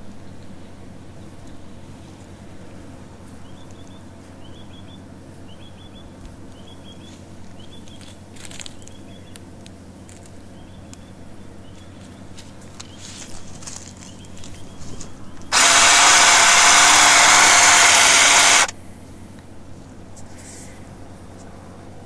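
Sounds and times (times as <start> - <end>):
small bird chirping: 3.4 - 9.4
sharp clicks: 15.5 - 18.7.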